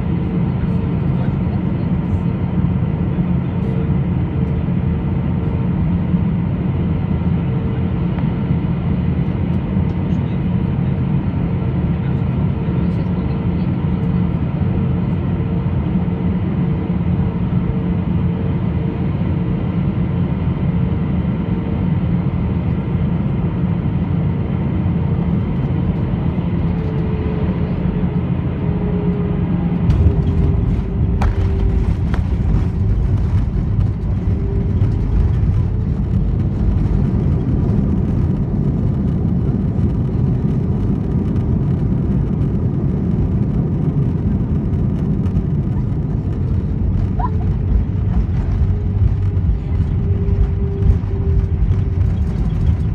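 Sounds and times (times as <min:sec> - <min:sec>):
airplane engines and airflow rumbling: 0:00.0 - 0:52.9
faint pulsing hum: 0:24.6 - 0:52.9.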